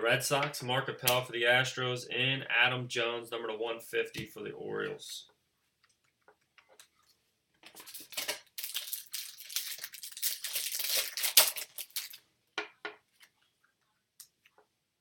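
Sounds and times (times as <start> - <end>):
foil wrapper tearing and crinkling: 7.7 - 12.2.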